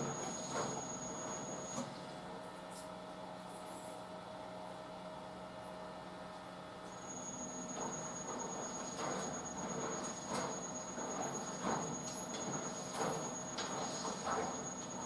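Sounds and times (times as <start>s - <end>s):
washing machine motor hum: 0.0s - 1.8s, 6.9s - 15.0s.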